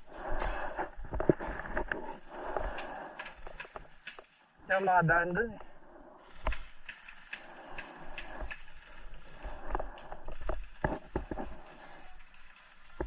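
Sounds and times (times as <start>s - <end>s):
footsteps on hard ground: 6.4s - 11.8s.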